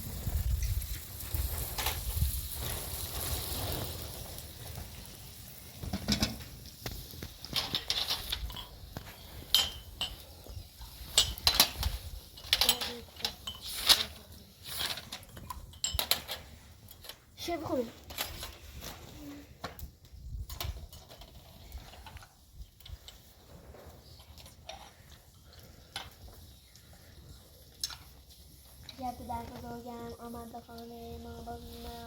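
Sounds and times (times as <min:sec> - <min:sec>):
food sizzling in a frying pan: 0:00.0 - 0:12.0
utensils clinking against dishes: 0:09.4 - 0:17.2.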